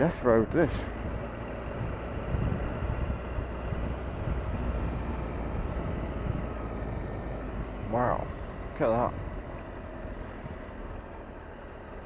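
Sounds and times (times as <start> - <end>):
motorcycle engine running: 0.0 - 10.9
wind noise on microphone: 1.0 - 6.8.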